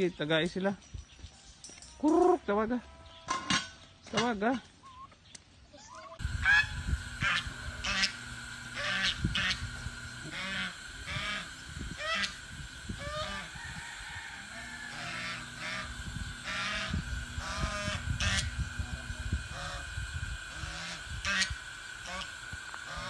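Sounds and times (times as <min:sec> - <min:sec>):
steady high-pitched hum: 0:01.7 - 0:23.0
poultry honking calls: 0:05.9 - 0:09.7, 0:10.3 - 0:12.4, 0:13.0 - 0:18.6, 0:19.5 - 0:23.0.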